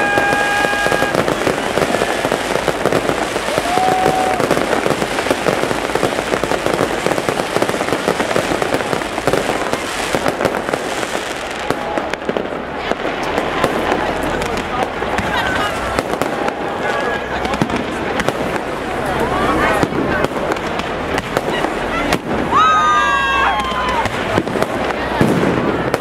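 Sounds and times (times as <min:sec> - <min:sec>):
firework whistle: 0:00.0 - 0:05.6
fireworks bursting and crackling: 0:00.0 - 0:26.0.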